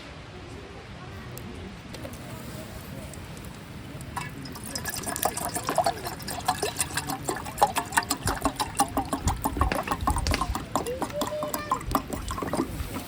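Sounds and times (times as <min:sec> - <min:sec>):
water gurgling and splashing: 0:04.0 - 0:13.0.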